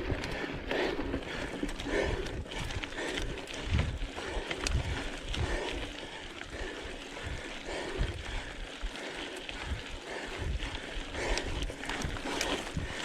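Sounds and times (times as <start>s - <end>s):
bike rattling on dirt trail: 0.0s - 13.0s
wind buffeting microphone: 0.0s - 13.0s.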